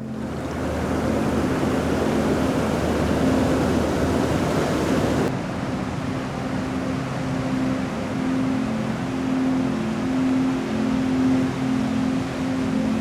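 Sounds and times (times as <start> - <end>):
low hum: 0.0 - 5.3
sea surf washing: 0.0 - 5.3.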